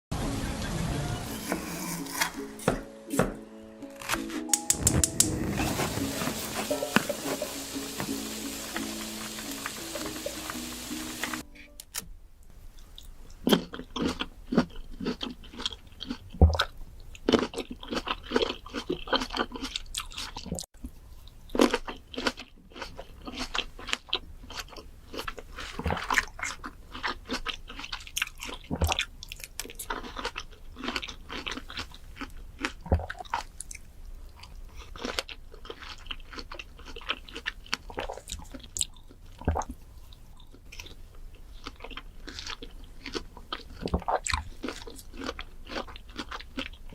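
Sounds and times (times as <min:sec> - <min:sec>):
wet chewing: 0:12.8 - 0:46.9.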